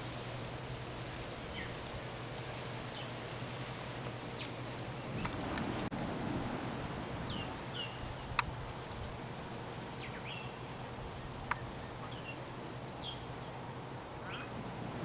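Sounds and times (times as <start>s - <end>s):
small birds chirping: 0.0s - 5.6s, 7.2s - 14.7s
steady low background noise: 0.0s - 15.0s
sharp ticks: 8.3s - 9.5s.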